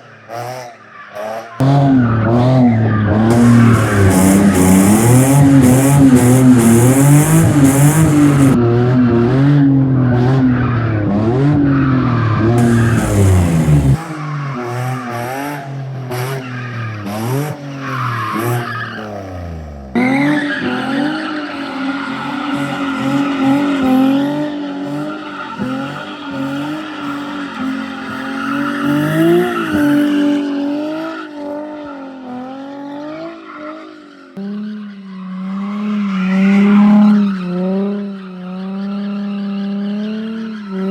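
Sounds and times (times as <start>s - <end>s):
car engines revving hard: 0.0s - 40.9s
tyre squeal: 11.8s - 19.2s, 20.0s - 32.1s.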